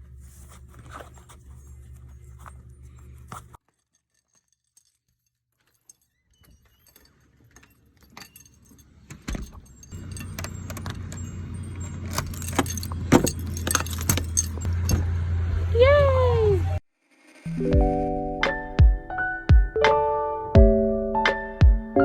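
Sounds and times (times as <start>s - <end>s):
keys jangling: 3.6s - 15.0s.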